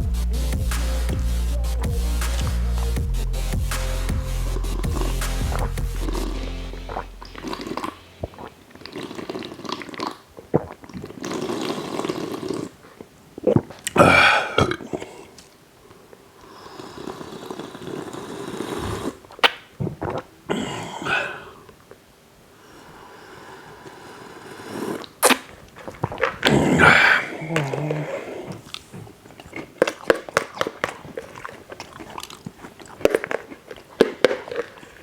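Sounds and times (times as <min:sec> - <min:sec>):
wet chewing: 0:04.6 - 0:14.0, 0:25.0 - 0:26.9, 0:27.6 - 0:35.0
breathing: 0:22.5 - 0:24.8.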